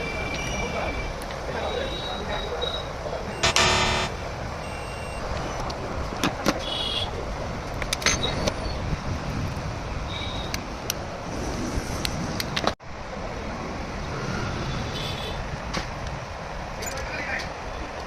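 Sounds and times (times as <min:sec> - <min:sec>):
road traffic noise: 0:00.0 - 0:18.0
short pitched tone: 0:03.4 - 0:04.2.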